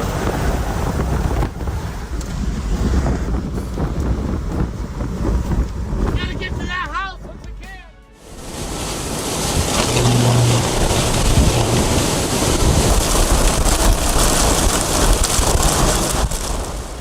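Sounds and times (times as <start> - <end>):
rain: 0.0 - 5.0, 8.2 - 17.0
storm wind blowing: 8.3 - 17.0
low hum: 9.1 - 13.0.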